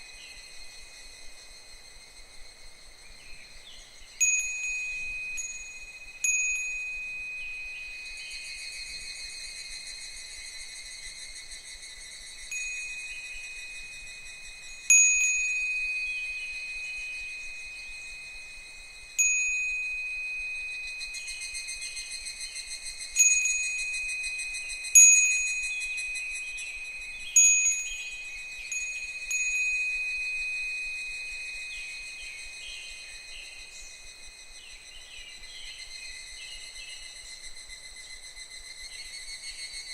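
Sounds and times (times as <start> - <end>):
faint cicadas calling: 0.0 - 39.9
wind bell ringing: 4.2 - 10.4, 12.4 - 34.3.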